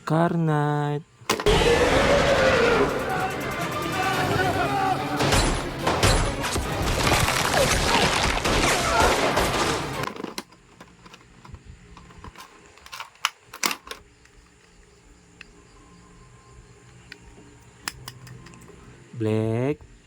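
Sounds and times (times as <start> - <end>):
gunfire and crashing sound effects: 1.4 - 10.1.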